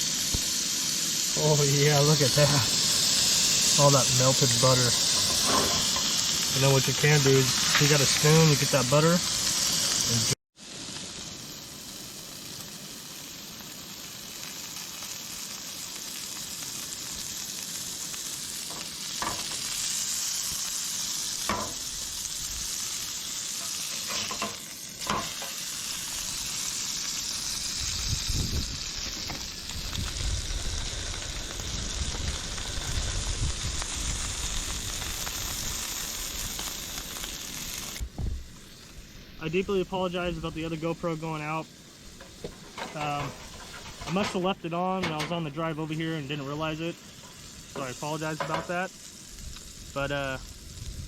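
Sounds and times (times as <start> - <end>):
patties sizzling in a pan: 0.0 - 51.0.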